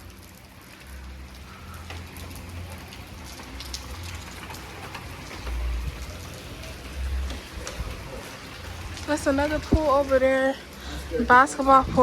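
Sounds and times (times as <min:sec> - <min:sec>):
rain pattering: 0:00.0 - 0:12.0
water drips ticking: 0:00.0 - 0:12.0
low microphone rumble: 0:11.1 - 0:12.0.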